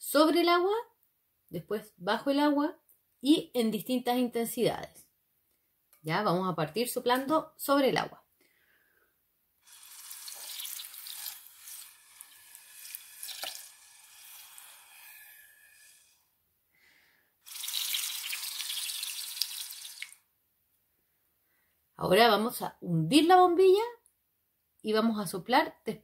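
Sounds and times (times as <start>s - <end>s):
breath hissing through a straw: 9.6s - 18.0s.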